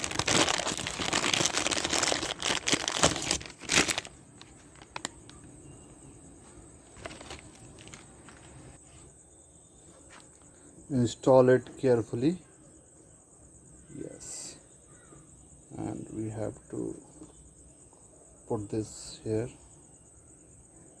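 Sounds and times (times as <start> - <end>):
plastic packaging crinkling: 0.0 - 5.6, 6.8 - 8.8.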